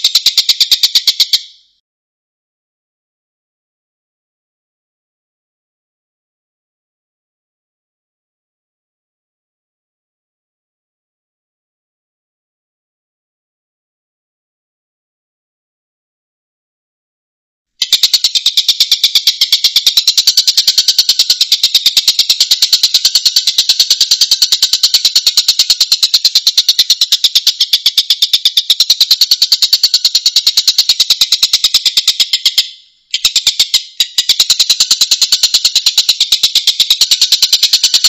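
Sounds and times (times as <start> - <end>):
bird rattling call: 0.0 - 1.6, 17.8 - 38.0.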